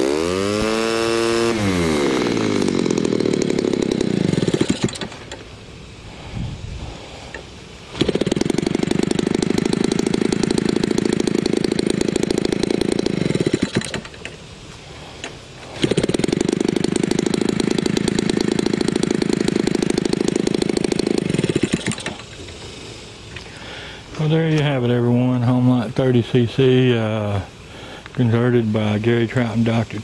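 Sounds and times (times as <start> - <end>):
model plane engine at full throttle: 0.0 - 5.1, 8.0 - 14.1, 15.8 - 22.2
small engine idling: 0.0 - 24.7.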